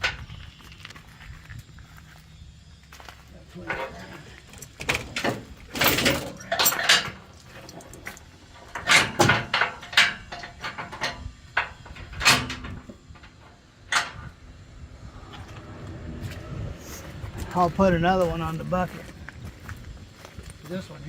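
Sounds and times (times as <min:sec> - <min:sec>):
steel chain clanking: 0:03.6 - 0:14.3.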